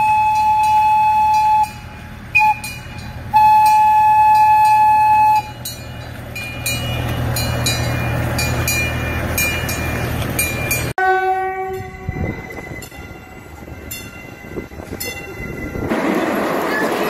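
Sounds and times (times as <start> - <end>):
miniature train humming: 0.0 - 10.9
train wheels clicking: 0.0 - 10.9
passing train rumble: 0.0 - 17.0
train horn: 11.0 - 12.6.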